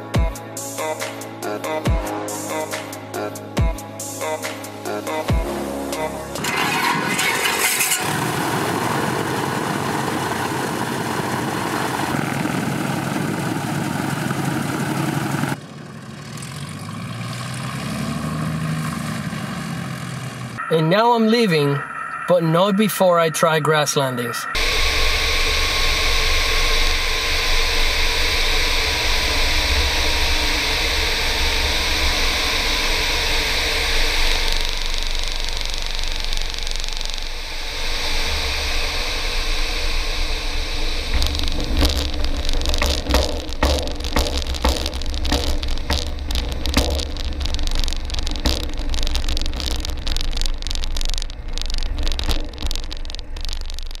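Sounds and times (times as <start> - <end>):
aircraft engine and propeller drone: 6.4 - 16.9, 24.5 - 46.0
sharp thumps: 26.8 - 54.0.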